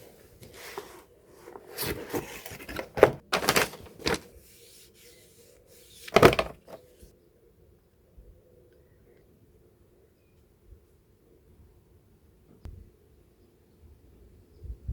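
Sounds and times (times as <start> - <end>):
handling knocks and rubbing: 0.4 - 7.0.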